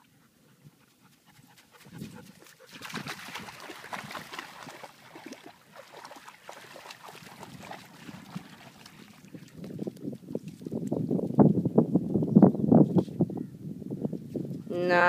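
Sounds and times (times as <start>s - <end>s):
dog panting: 0.0s - 2.8s.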